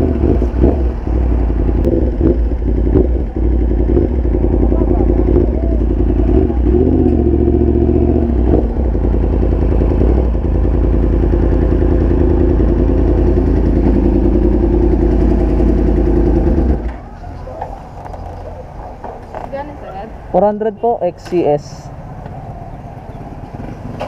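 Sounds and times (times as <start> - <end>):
motorcycle engine running: 0.0 - 19.1, 21.9 - 24.0.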